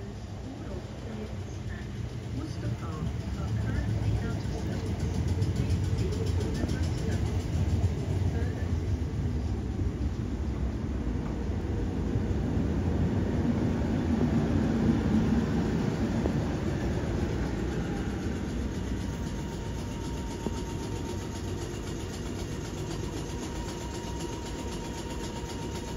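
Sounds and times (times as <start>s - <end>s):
electric train rumble: 0.0s - 25.9s
thin steady high tone: 14.8s - 25.9s.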